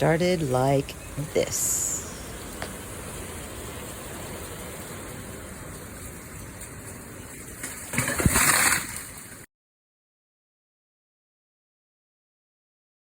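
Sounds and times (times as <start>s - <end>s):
steady rushing noise: 0.0s - 8.3s.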